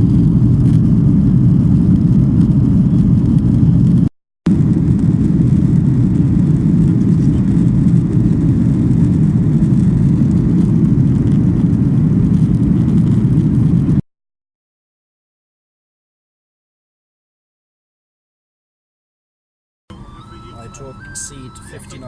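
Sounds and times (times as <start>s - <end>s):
airliner cabin engine rumble: 0.0s - 14.0s, 19.9s - 22.0s.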